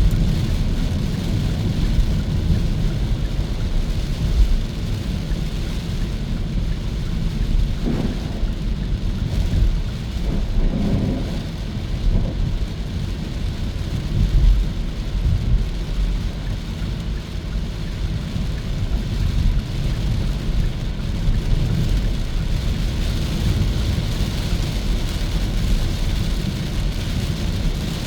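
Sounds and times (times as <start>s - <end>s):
road and wind noise: 0.0s - 28.0s.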